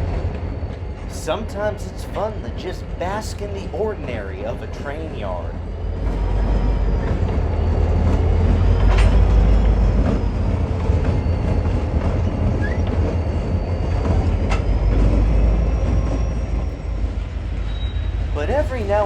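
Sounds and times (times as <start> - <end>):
train rumbling: 0.0 - 19.0
wheels squealing: 5.6 - 19.0
metallic clanks: 8.7 - 9.7.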